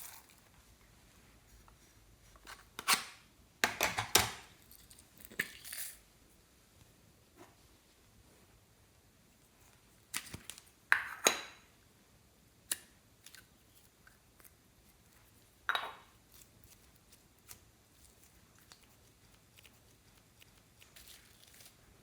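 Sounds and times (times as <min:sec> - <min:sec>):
crackles and clicks of handling: 0:09.6 - 0:10.7, 0:12.7 - 0:22.0.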